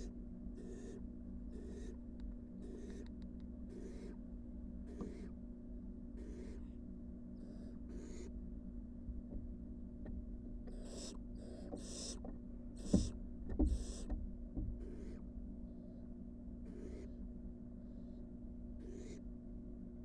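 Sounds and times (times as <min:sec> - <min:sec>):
owl chicks rasping hisses: 0:00.0 - 0:02.0, 0:02.6 - 0:04.2, 0:04.9 - 0:05.4, 0:06.2 - 0:06.8, 0:07.4 - 0:08.3, 0:10.7 - 0:12.2, 0:12.8 - 0:14.1, 0:14.8 - 0:15.2, 0:16.7 - 0:17.2, 0:18.8 - 0:19.2
dull thumps in wooden box: 0:12.8 - 0:14.8.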